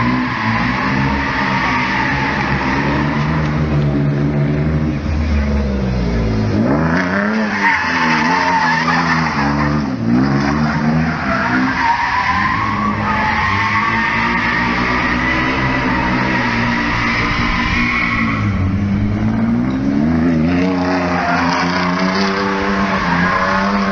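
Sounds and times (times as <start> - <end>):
car engine revving hard: 6.3 - 23.9
tyres squealing: 7.3 - 18.8.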